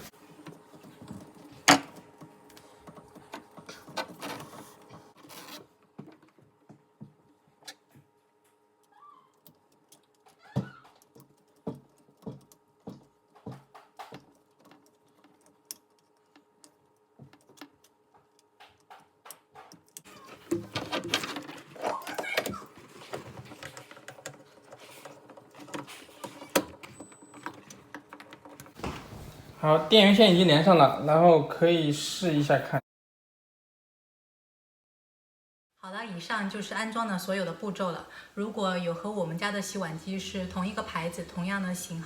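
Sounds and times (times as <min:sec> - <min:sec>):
rustling and scraping: 0:00.0 - 0:06.6, 0:20.1 - 0:29.6
small clicks and knocks: 0:06.0 - 0:28.8.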